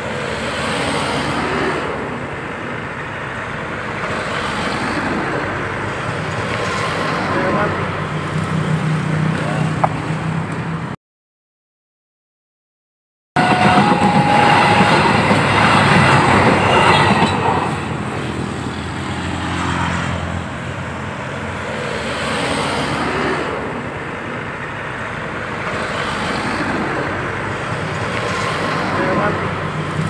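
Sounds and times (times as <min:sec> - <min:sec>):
train wheels rumbling on rails: 0:00.0 - 0:10.9, 0:13.4 - 0:30.0
road traffic noise: 0:00.0 - 0:11.0, 0:13.4 - 0:30.0.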